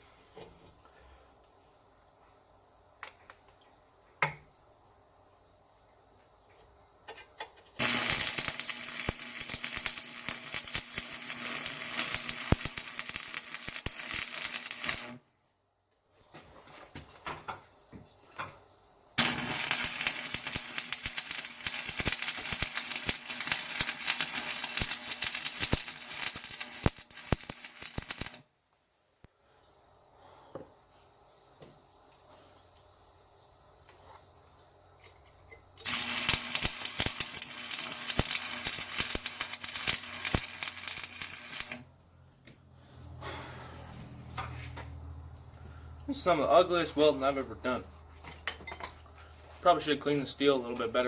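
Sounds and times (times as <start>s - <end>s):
welding arc crackling: 7.8s - 15.2s, 19.2s - 28.4s, 35.8s - 41.9s.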